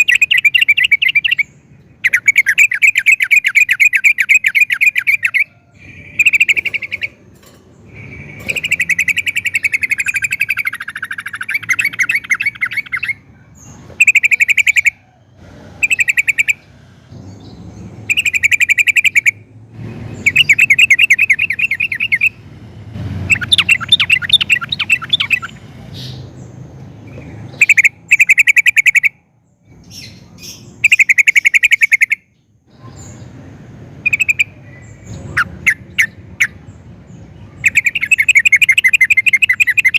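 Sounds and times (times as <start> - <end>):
bird singing chattering notes: 0.0 - 15.0, 15.8 - 19.5, 20.1 - 22.5, 23.2 - 39.9.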